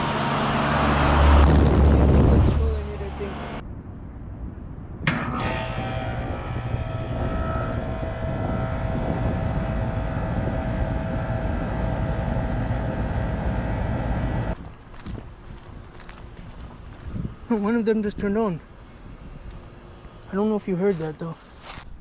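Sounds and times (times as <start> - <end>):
compressor hum: 5.0 - 14.6
steady whine: 5.0 - 14.6
air conditioner fan rush: 5.4 - 14.6.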